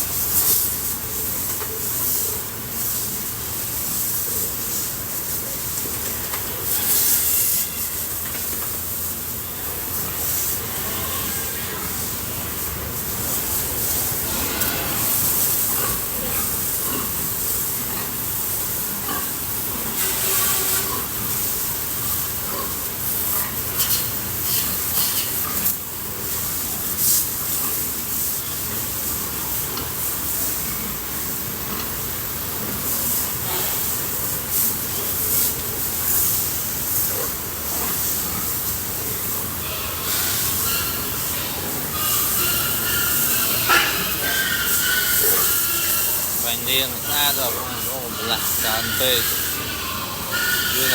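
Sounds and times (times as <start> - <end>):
water jet spraying: 0.0 - 18.8, 37.8 - 50.9.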